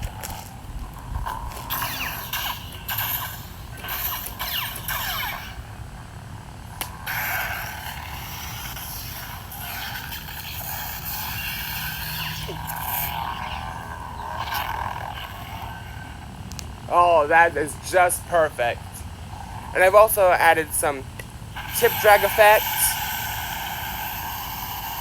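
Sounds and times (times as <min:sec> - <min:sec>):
lightsaber electric hum: 0:00.0 - 0:25.0
lightsaber swing sounds: 0:01.1 - 0:05.6, 0:21.7 - 0:23.0.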